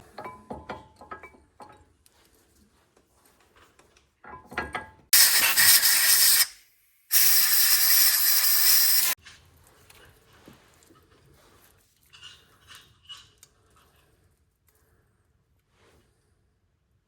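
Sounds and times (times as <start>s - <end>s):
aerosol can rattling: 5.2s - 6.5s, 7.1s - 9.2s
aerosol spray hissing: 5.2s - 9.2s.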